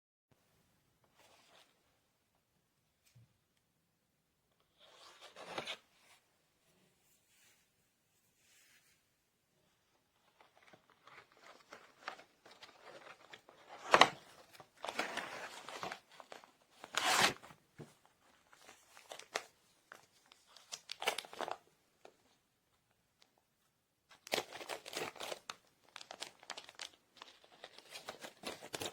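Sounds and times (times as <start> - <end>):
plastic crackles: 24.1 - 28.9
plastic packaging rustling: 24.1 - 28.9.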